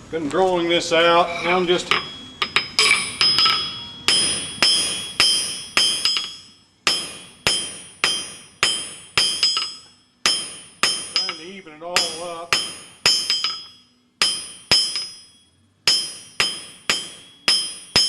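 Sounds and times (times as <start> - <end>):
hammer striking steel on anvil: 1.0 - 18.0.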